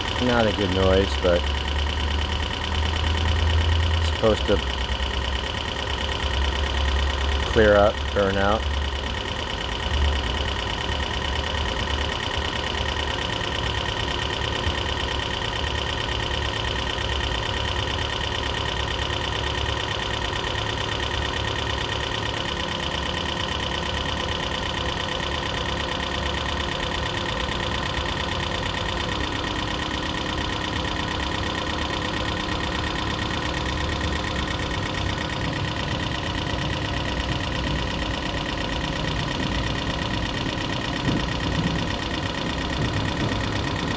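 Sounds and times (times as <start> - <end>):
car engine running: 0.0 - 43.9
steady high tone: 16.9 - 43.9.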